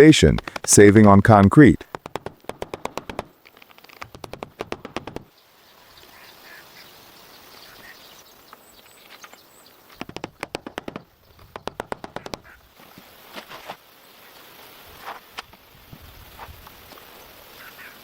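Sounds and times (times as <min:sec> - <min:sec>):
faint outdoor background: 0:00.0 - 0:18.0.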